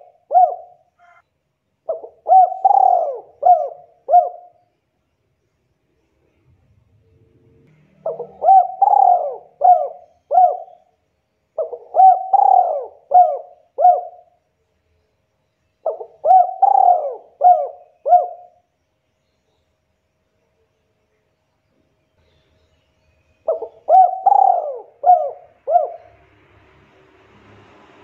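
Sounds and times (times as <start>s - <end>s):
dove cooing: 0.0s - 1.2s, 1.9s - 4.6s, 8.0s - 10.9s, 11.6s - 14.3s, 15.8s - 18.6s, 23.5s - 26.2s.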